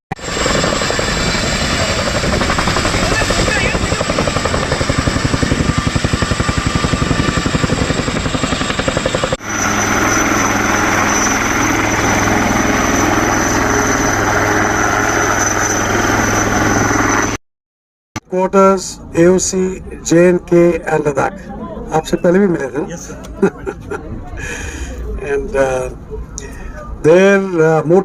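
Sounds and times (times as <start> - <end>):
aircraft engine drone: 0.2 - 17.4
helicopter rotor chop: 0.2 - 17.4.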